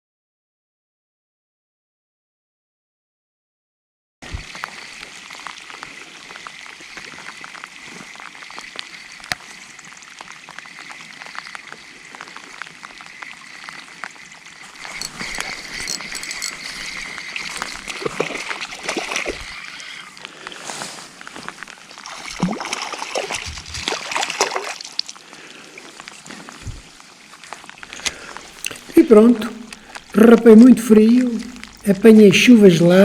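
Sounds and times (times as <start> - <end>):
water splashing and trickling: 4.2 - 33.0.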